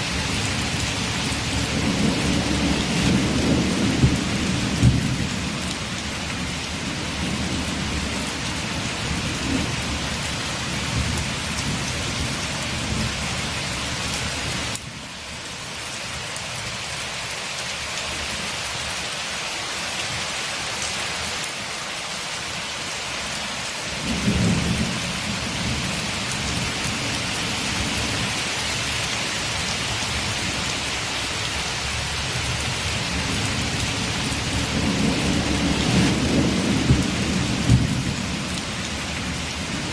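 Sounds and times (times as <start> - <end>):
heavy rain on a window: 0.0 - 39.9
low rolling thunder: 0.2 - 13.2, 24.0 - 28.3, 32.4 - 39.9.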